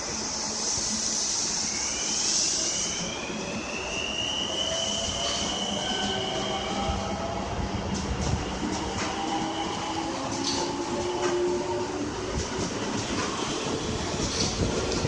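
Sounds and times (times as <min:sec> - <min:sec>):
high hiss: 0:00.0 - 0:06.1.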